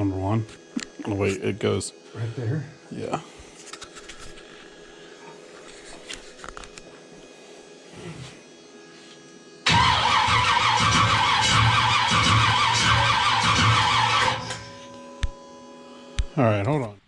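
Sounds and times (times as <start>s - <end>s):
engine cranking with starter whine: 9.6s - 14.8s.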